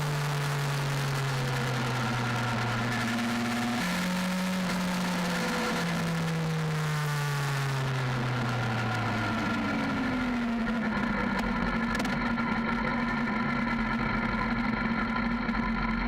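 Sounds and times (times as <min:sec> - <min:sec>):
motorcycle engine slowing to idle: 0:08.0 - 0:16.0.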